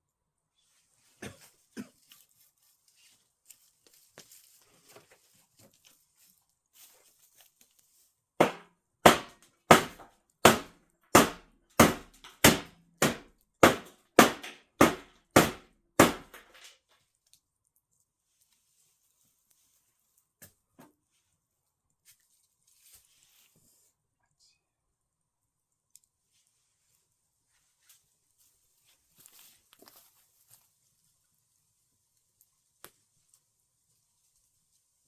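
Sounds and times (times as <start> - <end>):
axe chopping wood: 8.4 - 16.6.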